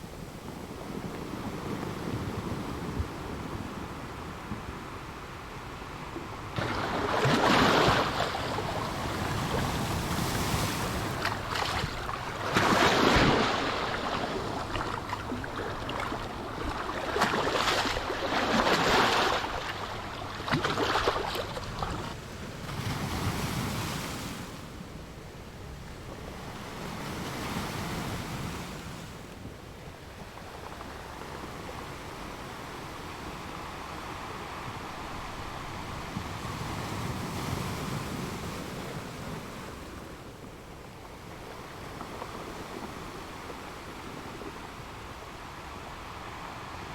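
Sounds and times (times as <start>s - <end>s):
ocean waves breaking: 0.0s - 24.7s.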